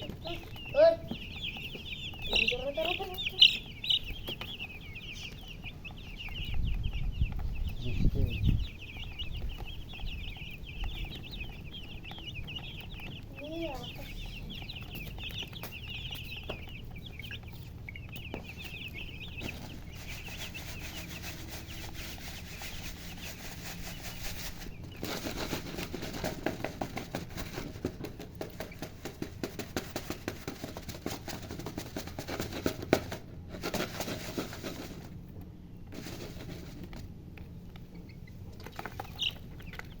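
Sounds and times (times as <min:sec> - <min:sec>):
fast rustling and tapping: 0:00.0 - 0:35.2
chicks peeping: 0:00.0 - 0:40.0.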